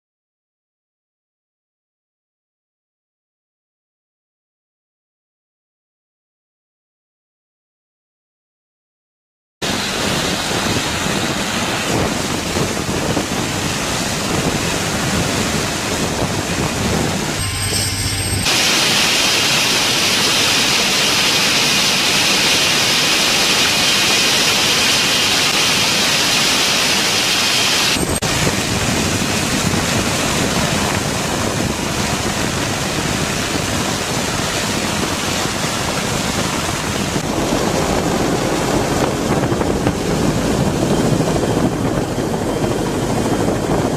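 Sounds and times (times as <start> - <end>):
loud rushing hiss: 15.1 - 29.1.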